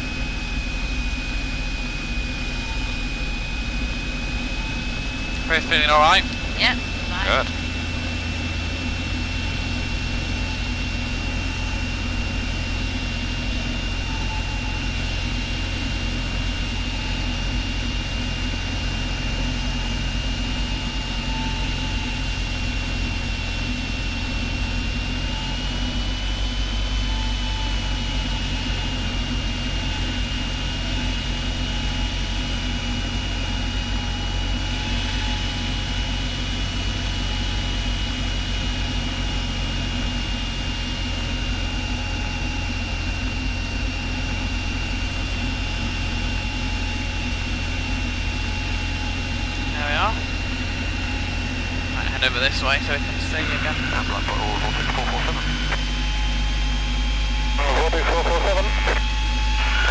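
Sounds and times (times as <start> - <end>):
airplane engine and propeller drone: 0.0 - 59.9.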